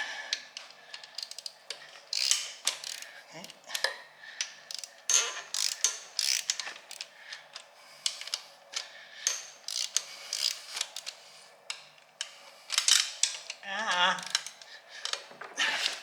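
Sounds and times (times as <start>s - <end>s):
ratchet wrench clicking: 1.1s - 3.6s, 4.7s - 7.1s, 9.3s - 11.2s.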